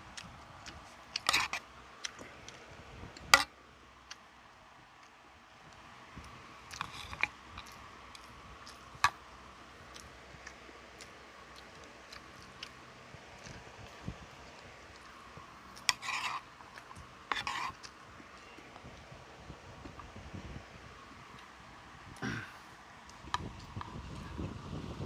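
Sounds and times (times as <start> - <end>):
person chewing food: 0.1 - 4.3, 5.0 - 19.1, 22.6 - 23.9.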